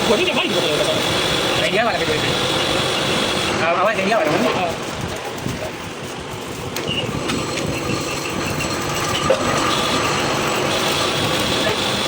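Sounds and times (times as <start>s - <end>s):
thin high whine: 0.0s - 12.0s
workshop machinery rumbling: 0.0s - 12.0s.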